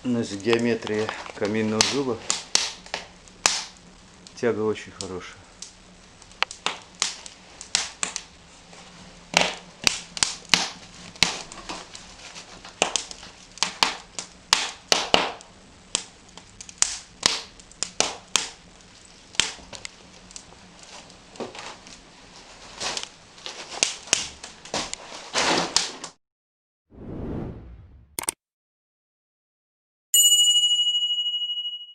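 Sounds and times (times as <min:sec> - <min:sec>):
wood fire crackling and popping: 0:00.0 - 0:26.2.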